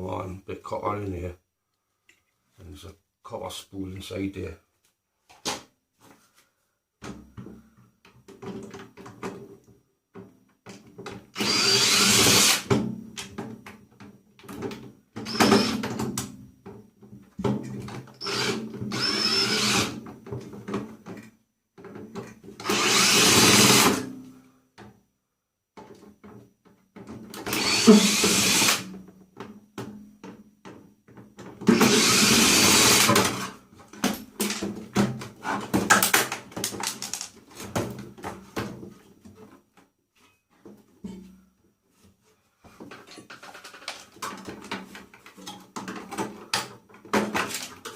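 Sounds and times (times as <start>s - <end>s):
power drill running: 11.4s - 12.7s, 15.2s - 15.8s, 18.2s - 20.0s, 22.6s - 24.0s, 27.4s - 28.9s, 31.7s - 33.5s
parts clicking and knocking: 32.9s - 38.8s, 42.8s - 47.9s.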